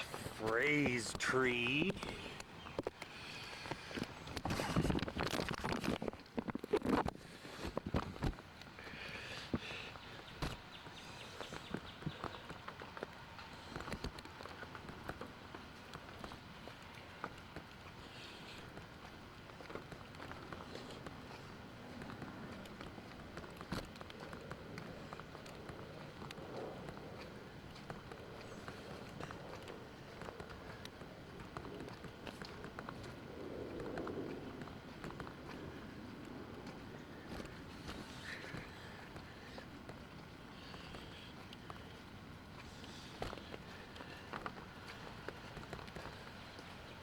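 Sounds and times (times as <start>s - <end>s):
footsteps: 0.0s - 8.4s
footsteps outdoors: 0.0s - 47.0s.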